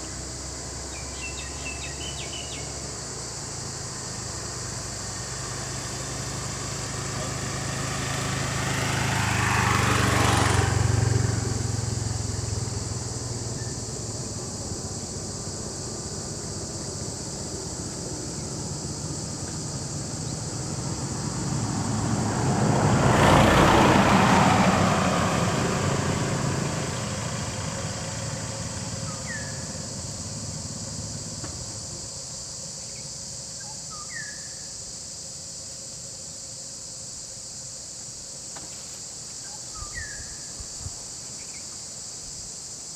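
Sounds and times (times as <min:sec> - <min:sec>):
vehicle engine: 0:00.0 - 0:41.2
insects droning: 0:00.0 - 0:42.9
bird chirps: 0:00.9 - 0:02.8, 0:29.0 - 0:29.7, 0:39.4 - 0:40.6.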